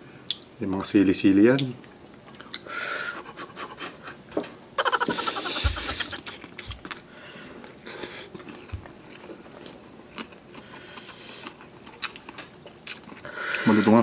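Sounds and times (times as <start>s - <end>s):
wet chewing mouth sounds: 1.6s - 2.7s, 4.8s - 13.6s
breaths: 2.6s - 3.2s, 7.1s - 8.4s, 13.2s - 14.0s
hissy slurps: 4.8s - 6.8s.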